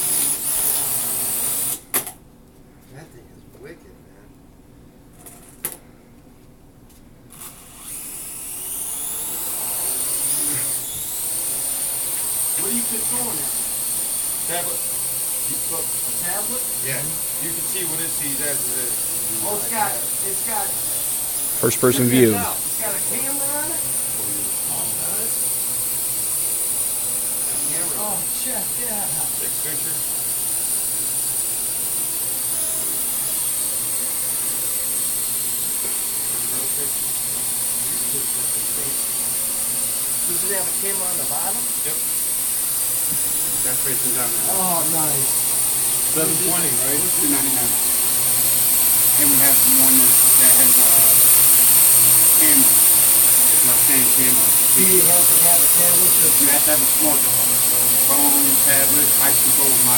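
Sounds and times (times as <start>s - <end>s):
drone propellers whining: 39.7s - 59.9s.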